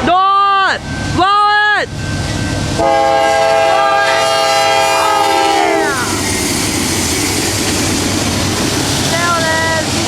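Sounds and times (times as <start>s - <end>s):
train rumbling: 0.0s - 10.0s
locomotive air horn chord: 2.8s - 6.1s.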